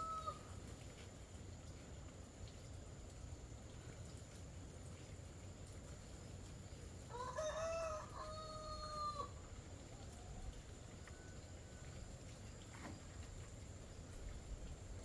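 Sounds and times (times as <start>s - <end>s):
rooster crowing: 0.0s - 0.5s, 7.1s - 9.4s.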